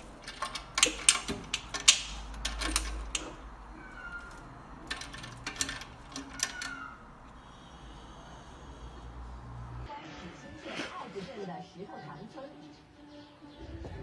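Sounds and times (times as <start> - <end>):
sharp clicks and knocks: 0.0 - 6.9
cat crying faintly: 3.7 - 4.9, 6.2 - 7.2.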